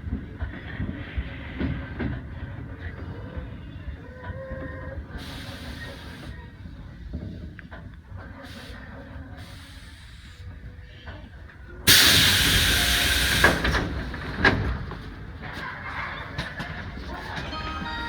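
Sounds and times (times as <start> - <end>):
electric train rumbling: 0.0 - 10.8, 11.8 - 18.0
compressed air hiss: 11.9 - 13.8.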